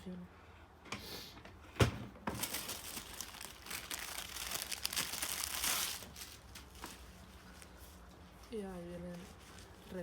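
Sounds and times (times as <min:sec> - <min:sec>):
packaging crinkling and rustling: 0:02.3 - 0:07.9.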